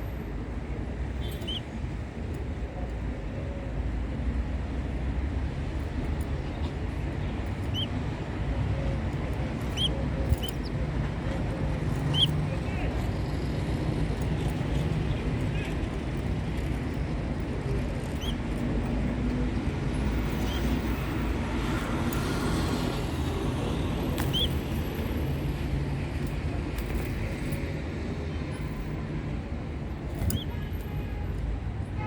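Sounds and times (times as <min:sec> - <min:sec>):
low rumble of road traffic: 0:00.0 - 0:32.0
bird chirps: 0:01.2 - 0:01.7, 0:07.6 - 0:08.0, 0:09.6 - 0:10.8, 0:12.0 - 0:12.4, 0:18.1 - 0:18.5, 0:20.4 - 0:20.8, 0:24.2 - 0:24.6.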